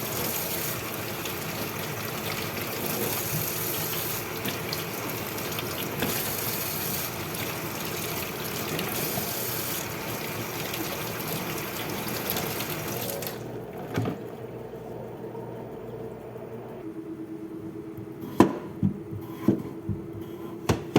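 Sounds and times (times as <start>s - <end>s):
tap water running and splashing: 0.0s - 14.2s.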